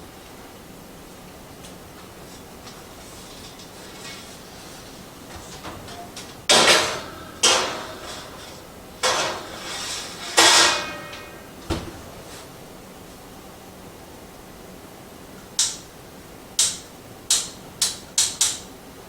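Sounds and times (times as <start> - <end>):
metal kitchenware clanking: 5.3 - 11.5.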